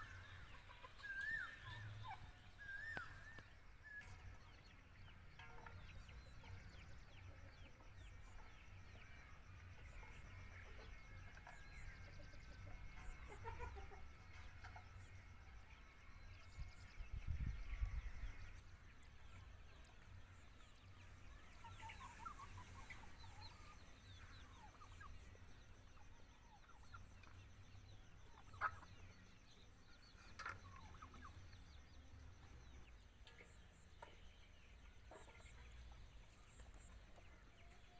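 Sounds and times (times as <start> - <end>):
chickens clucking: 0.0 - 8.5, 9.8 - 15.5, 21.0 - 27.5, 28.2 - 37.9.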